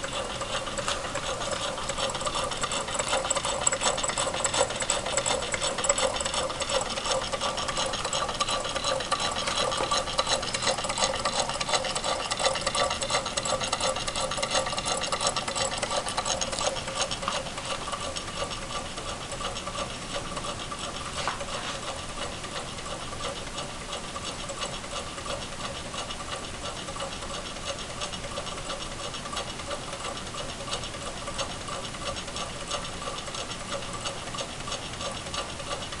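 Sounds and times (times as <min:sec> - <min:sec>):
engine ticking and rattling: 0:00.0 - 0:36.0.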